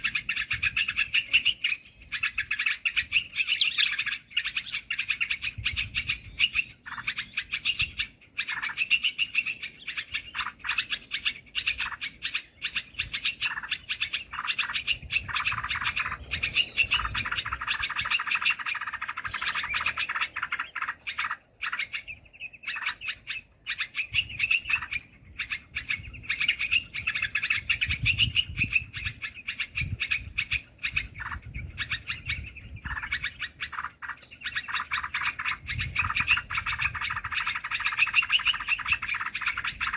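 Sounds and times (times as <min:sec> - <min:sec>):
bird rapid chirping and chattering: 0:00.0 - 0:39.9.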